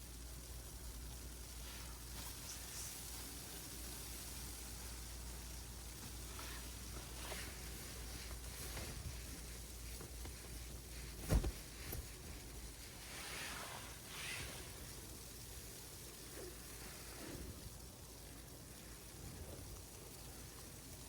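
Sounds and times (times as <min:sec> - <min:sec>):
sleet on tent fabric: 0:06.1 - 0:15.4.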